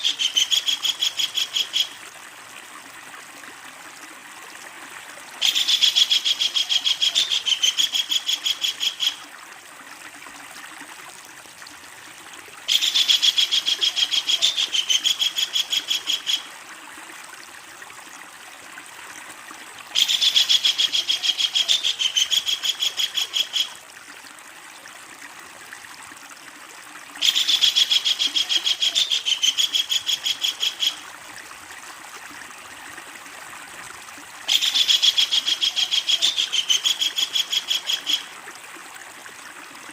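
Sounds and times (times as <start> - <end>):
kingfisher rattling call: 0.0 - 2.0, 12.7 - 16.5, 27.2 - 31.0, 34.5 - 38.3
stream water flowing: 0.0 - 39.9.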